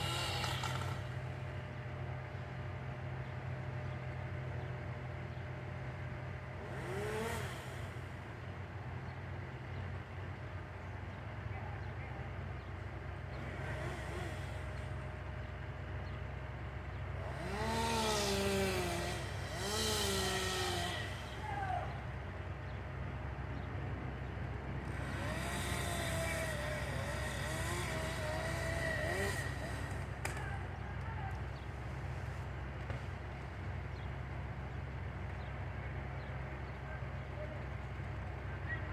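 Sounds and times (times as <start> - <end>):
chainsaw revving: 0.0 - 1.5, 6.4 - 8.6, 13.2 - 15.7, 17.0 - 22.5, 24.8 - 34.1
low engine hum: 0.0 - 38.9.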